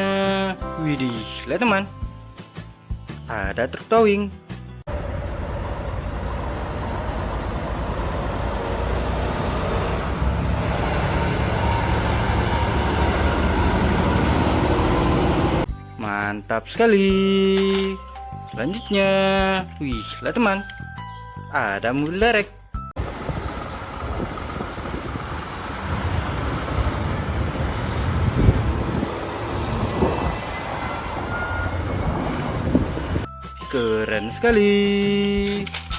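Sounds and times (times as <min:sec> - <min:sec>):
heavy truck engine running: 0:04.9 - 0:15.7, 0:23.0 - 0:33.3
road noise: 0:04.9 - 0:15.7, 0:23.0 - 0:33.4.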